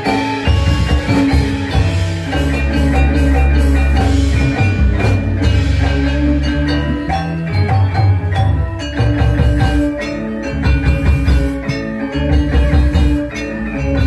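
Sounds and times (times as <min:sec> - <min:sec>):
drums: 0:00.0 - 0:14.0
metallophones ringing: 0:00.0 - 0:14.0.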